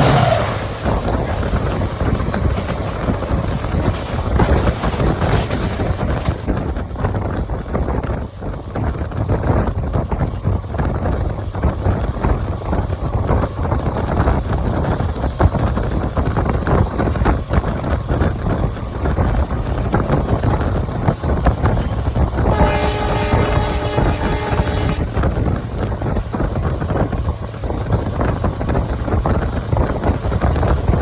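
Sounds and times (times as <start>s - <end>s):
train rumbling: 0.0s - 31.0s
wheels clicking over track: 0.0s - 31.0s
wind buffeting microphone: 0.0s - 31.0s.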